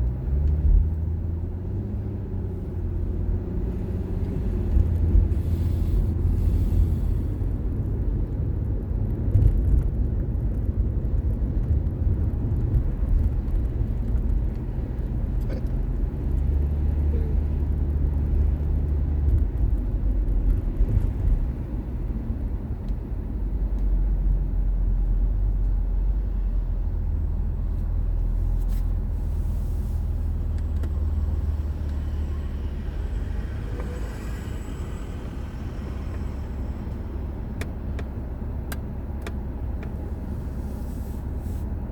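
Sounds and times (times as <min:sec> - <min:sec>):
car engine and road noise: 0:00.0 - 0:41.9.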